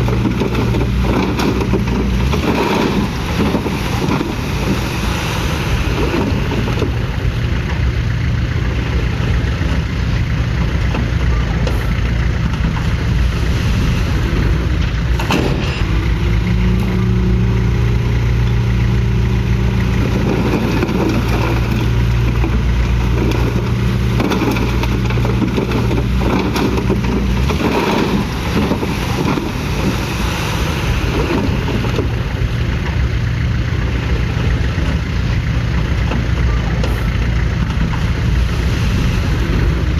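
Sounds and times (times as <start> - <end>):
bulldozer diesel engine running: 0.0 - 39.9
metallic clanks: 14.6 - 17.3.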